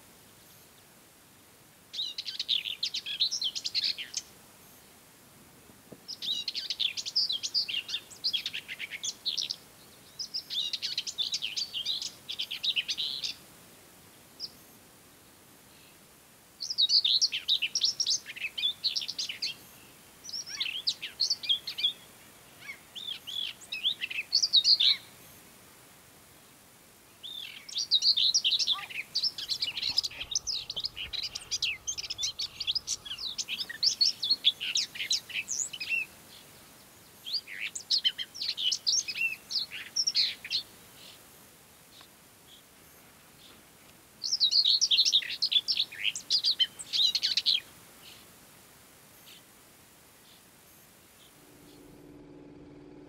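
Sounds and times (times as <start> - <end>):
bird warbling song: 6.1 - 13.4, 16.6 - 25.4, 27.2 - 41.2, 44.2 - 48.2, 51.2 - 53.0.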